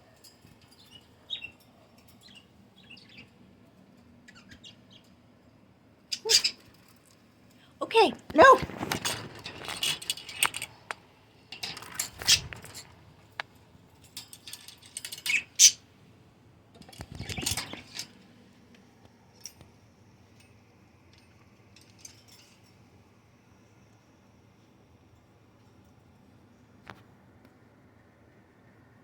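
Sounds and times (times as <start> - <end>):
birds clattering in cage: 8.3 - 15.9, 16.8 - 18.2.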